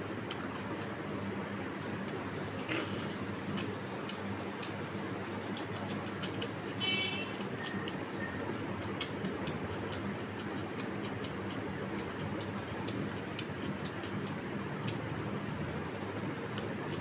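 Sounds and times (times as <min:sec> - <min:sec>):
steady low hum: 0:00.0 - 0:17.0
chewing: 0:00.2 - 0:15.1
fingers mixing food on metal plate: 0:03.6 - 0:15.0.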